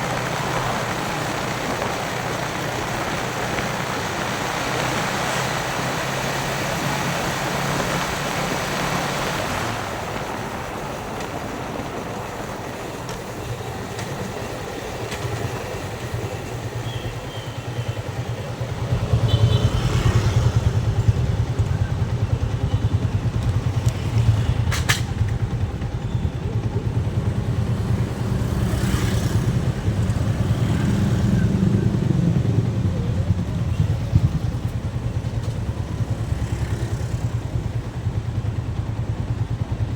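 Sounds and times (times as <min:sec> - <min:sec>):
wind and road rush: 0:00.0 - 0:39.9
motorcycle engine running: 0:12.4 - 0:39.9.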